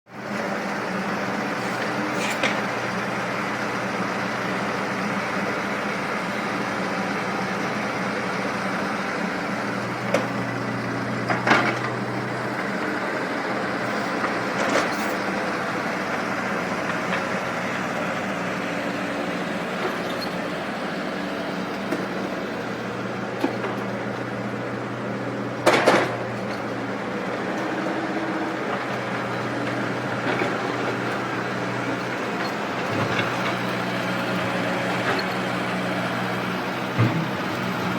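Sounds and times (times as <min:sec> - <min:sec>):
excavator diesel engine running: 0:00.1 - 0:37.9
sharp knocks and clanks: 0:36.9 - 0:37.7.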